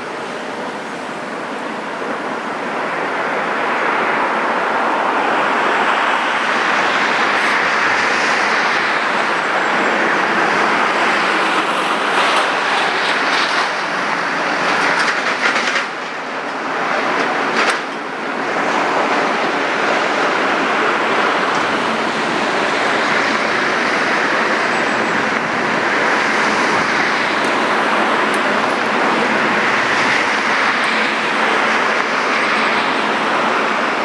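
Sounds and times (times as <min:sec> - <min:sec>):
passing vehicle rushing: 0:05.0 - 0:15.0.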